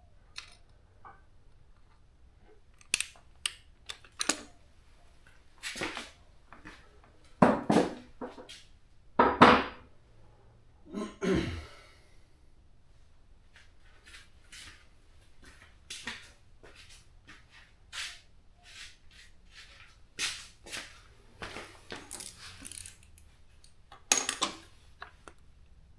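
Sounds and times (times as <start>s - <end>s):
tool clicks: 2.8s - 4.6s
metal parts clunking and scraping: 3.8s - 4.6s, 21.6s - 25.4s.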